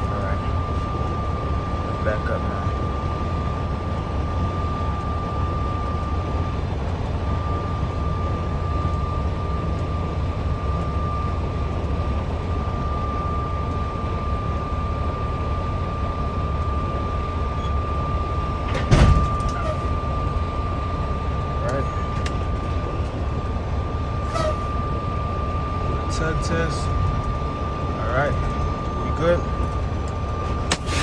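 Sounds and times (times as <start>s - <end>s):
diesel engine rumbling: 0.0s - 31.0s
thin high whine: 17.5s - 23.2s, 24.1s - 31.0s
loud metal clunk: 18.7s - 19.9s, 30.5s - 31.0s.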